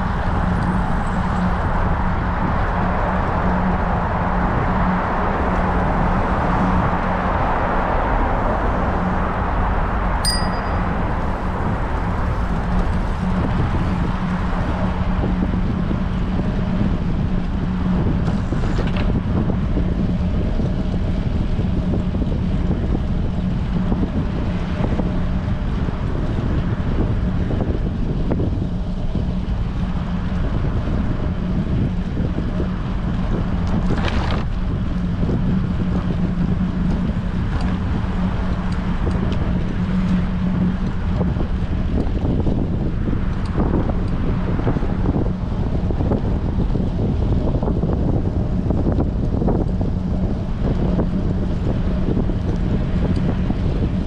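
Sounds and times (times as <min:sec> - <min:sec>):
wind buffeting microphone: 0:00.0 - 0:54.0
bicycle bell ding: 0:10.2 - 0:11.1.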